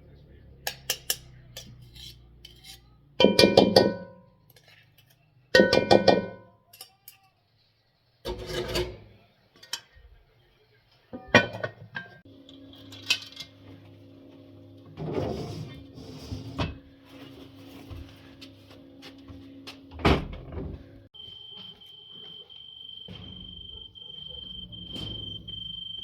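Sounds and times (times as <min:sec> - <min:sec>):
metal cookware clinking: 0:00.6 - 0:07.3, 0:08.3 - 0:10.0, 0:11.2 - 0:13.7.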